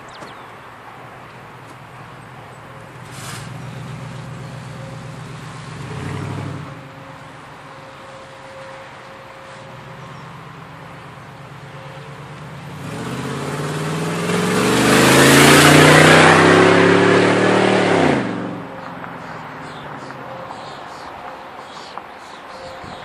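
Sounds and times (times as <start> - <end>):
unmuffled truck engine accelerating past: 2.0 - 7.1, 9.6 - 20.5.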